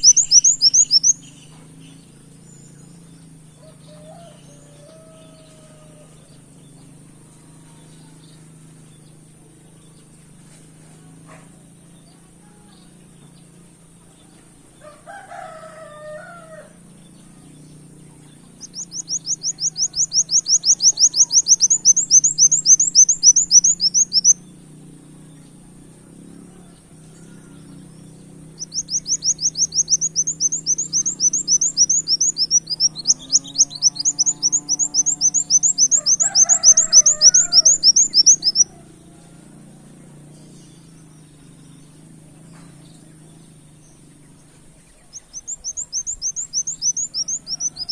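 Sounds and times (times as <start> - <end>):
faint lower bird calls: 0.0 - 3.0, 26.5 - 39.5
sunbird singing rapid trills: 0.0 - 47.9.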